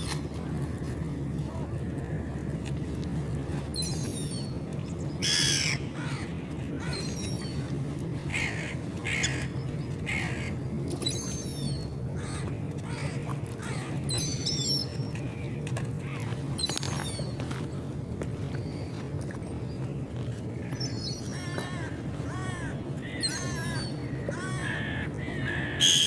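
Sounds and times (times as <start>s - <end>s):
low background rumble: 0.0s - 26.0s
seagulls crying: 5.2s - 14.9s, 20.6s - 26.0s.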